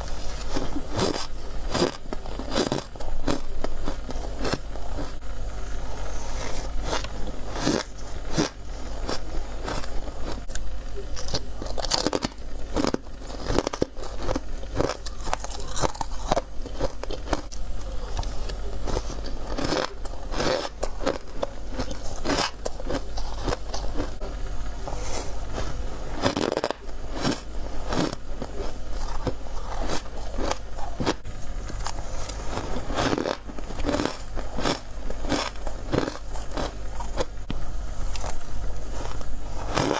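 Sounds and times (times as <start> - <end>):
steady low hum: 0.0 - 39.9
crunching bites of frost: 18.1 - 24.2, 26.2 - 31.2, 31.8 - 37.3, 38.1 - 39.9.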